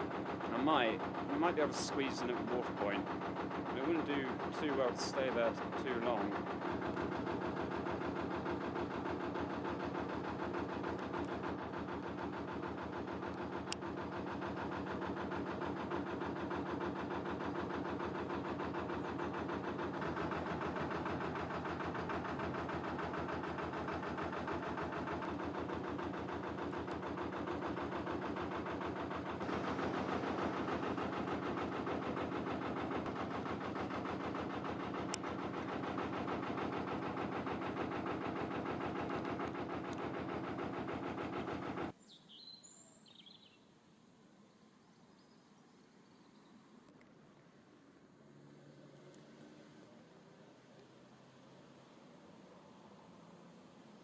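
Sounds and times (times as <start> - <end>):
boat engine running: 0.0 - 41.9.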